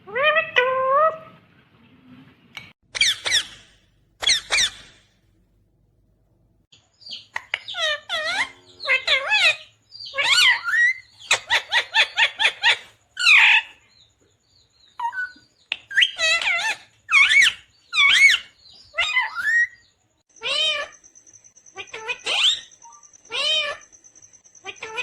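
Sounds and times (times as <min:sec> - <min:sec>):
parakeet calling: 0:02.9 - 0:05.0, 0:07.0 - 0:13.8, 0:14.9 - 0:25.0.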